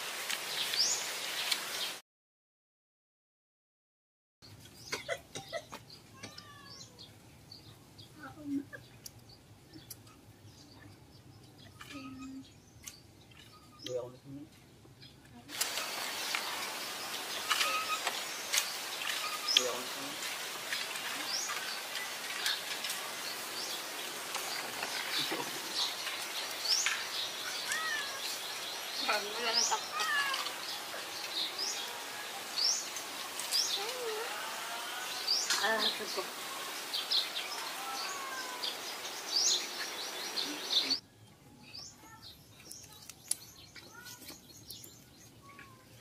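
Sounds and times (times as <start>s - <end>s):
bird chirping: 4.5s - 34.2s, 34.9s - 46.0s
background hiss: 15.5s - 41.0s.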